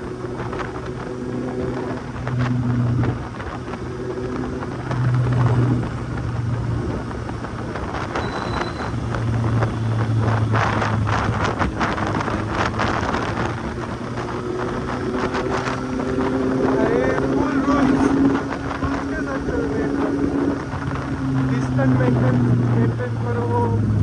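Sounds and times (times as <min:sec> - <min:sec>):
crackly wind buffeting: 0:00.0 - 0:24.0
motorcycle engine revving: 0:00.0 - 0:24.0
wind rush on microphone: 0:00.0 - 0:24.0.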